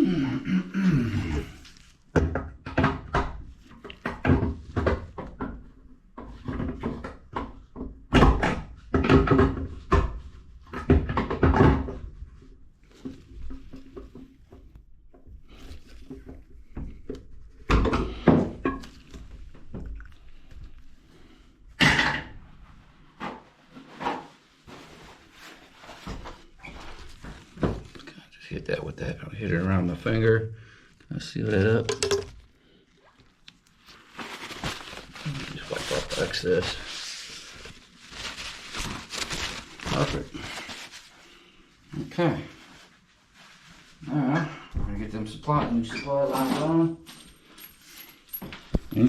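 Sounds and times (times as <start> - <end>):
plumbing parts and tools clunking: 31.6 - 32.5.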